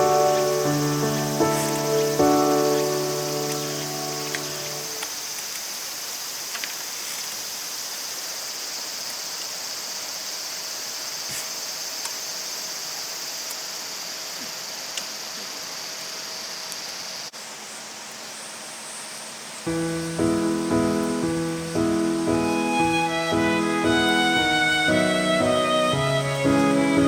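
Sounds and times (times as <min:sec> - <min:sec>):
high insect drone: 0:00.0 - 0:27.0
insects chirring: 0:00.0 - 0:27.0
faint ticks: 0:03.2 - 0:05.7, 0:14.4 - 0:15.5.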